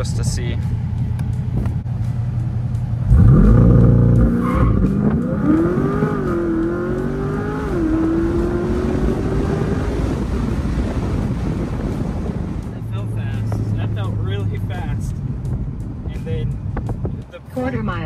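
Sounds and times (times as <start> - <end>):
car engine revving at full throttle: 0.9 - 16.0.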